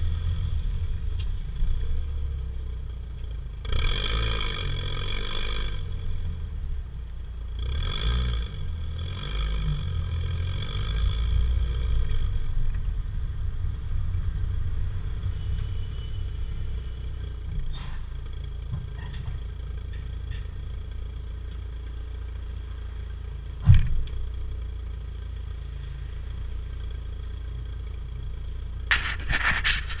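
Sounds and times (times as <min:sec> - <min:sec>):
low exhaust rumble: 0:00.0 - 0:07.8, 0:08.4 - 0:30.0
car engine revving: 0:03.6 - 0:06.4
noisy clatter: 0:18.6 - 0:21.6, 0:23.6 - 0:24.5, 0:28.8 - 0:30.0.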